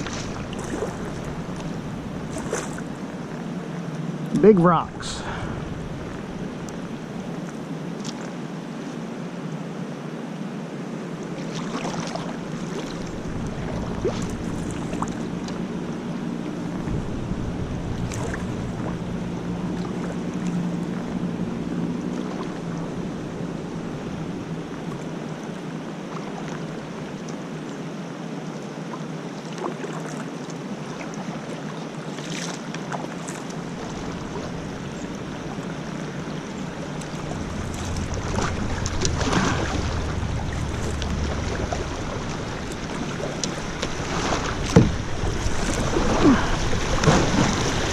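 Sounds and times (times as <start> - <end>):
wind rumbling on microphone: 0.0 - 8.0, 11.7 - 27.2, 33.5 - 47.9
river water rushing: 0.0 - 47.9.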